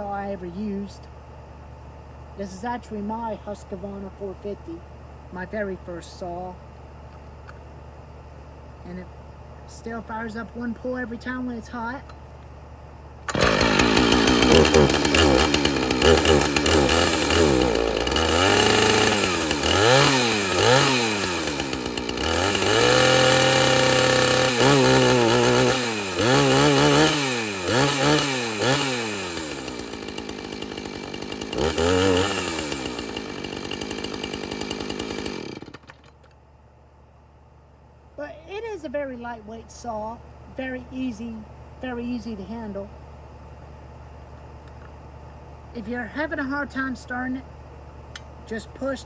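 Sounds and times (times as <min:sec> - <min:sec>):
chainsaw revving and idling: 0:13.2 - 0:36.4.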